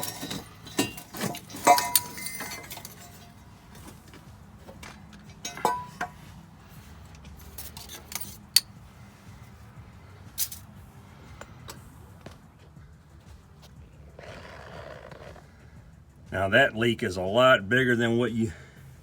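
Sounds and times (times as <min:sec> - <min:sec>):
hand tools clinking on metal: 0:00.0 - 0:06.3, 0:07.1 - 0:08.8, 0:10.3 - 0:10.8.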